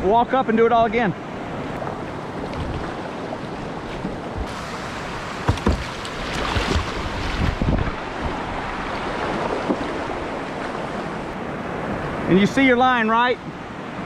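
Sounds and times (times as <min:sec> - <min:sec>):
rushing whitewater: 0:00.6 - 0:14.0
wind buffeting microphone: 0:01.6 - 0:12.3
low thumps: 0:04.0 - 0:07.9.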